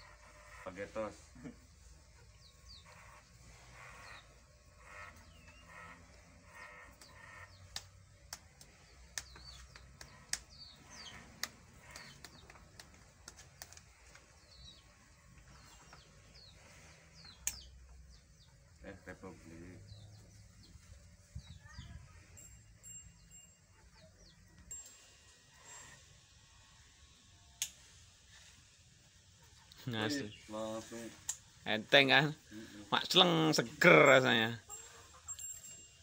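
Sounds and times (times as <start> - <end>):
small birds chirping: 0.0 - 26.2, 29.2 - 36.0
sharp clicks: 17.4 - 17.7.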